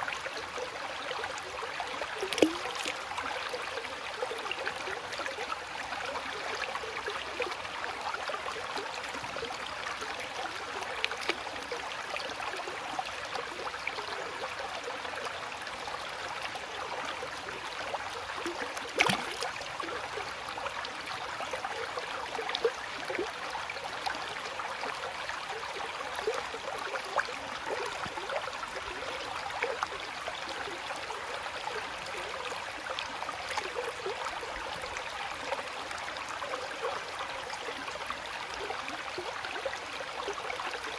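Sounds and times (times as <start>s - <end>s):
water babbling: 0.0s - 40.9s
sharp splash: 19.0s - 19.4s.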